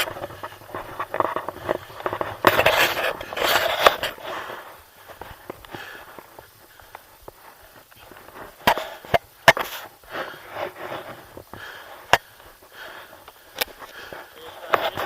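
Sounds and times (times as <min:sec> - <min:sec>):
person breathing hard: 0:03.2 - 0:09.1, 0:09.8 - 0:14.6.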